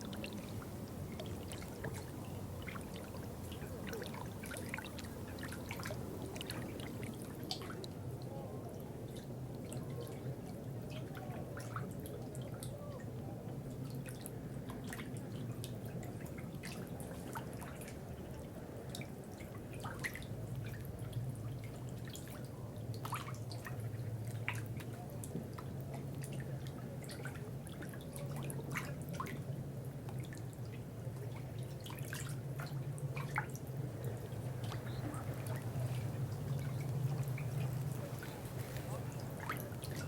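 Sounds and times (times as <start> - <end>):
steady low hum: 29.5 - 40.0.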